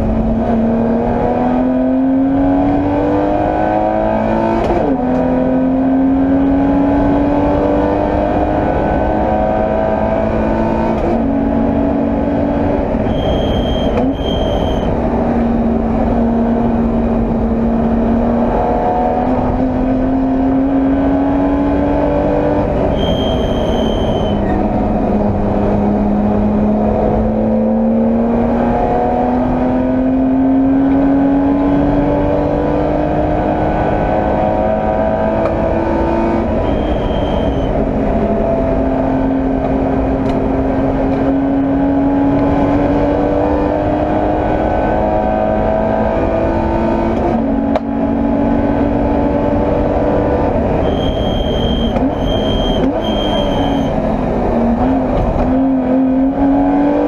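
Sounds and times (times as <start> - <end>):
car engine revving: 0.0 - 57.0
brief high-pitched squeal: 13.1 - 14.9, 22.9 - 24.6, 36.6 - 37.7, 50.8 - 53.9.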